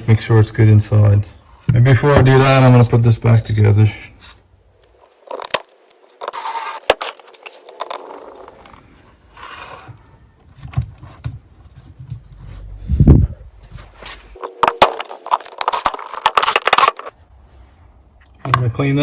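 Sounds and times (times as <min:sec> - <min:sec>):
small metal parts clinking: 0:14.4 - 0:17.1.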